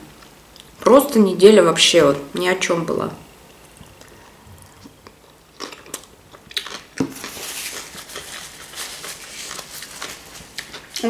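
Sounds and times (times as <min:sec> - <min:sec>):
chewing crunchy salad: 0:03.8 - 0:11.0.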